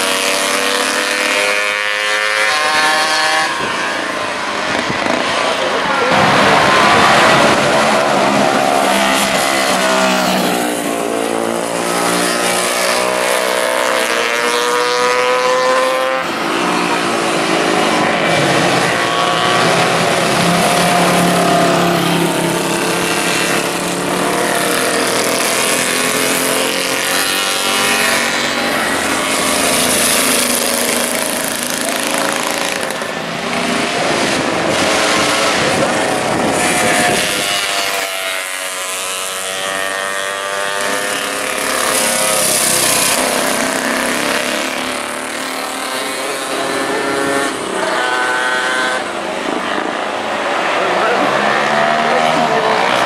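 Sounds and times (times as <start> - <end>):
racing motorcycle engines: 0.0 - 53.0
wind noise: 3.5 - 11.1, 33.0 - 38.0.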